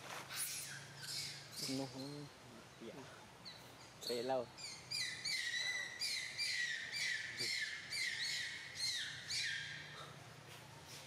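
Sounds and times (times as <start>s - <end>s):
bird calling high and short: 3.5s - 10.2s.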